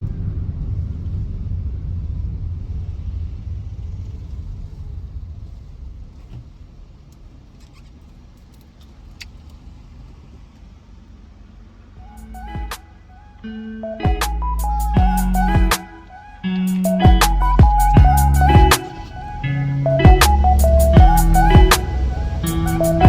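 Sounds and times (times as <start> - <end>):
car engine and road noise: 0.0 - 23.0
faint clicks: 7.1 - 9.7.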